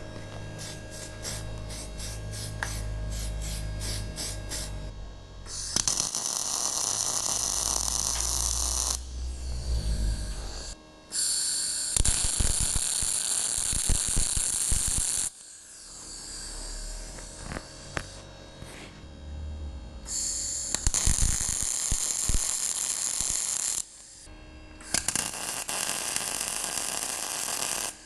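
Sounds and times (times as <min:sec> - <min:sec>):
arc welding crackling: 0:00.0 - 0:04.9, 0:05.5 - 0:09.5, 0:10.2 - 0:18.2, 0:20.1 - 0:28.0
low hum: 0:00.0 - 0:05.8, 0:07.2 - 0:10.9, 0:16.6 - 0:20.1.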